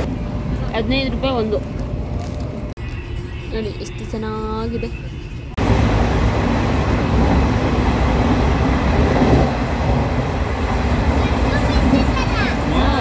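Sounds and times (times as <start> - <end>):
train wheels rumbling on rails: 5.6 - 13.0.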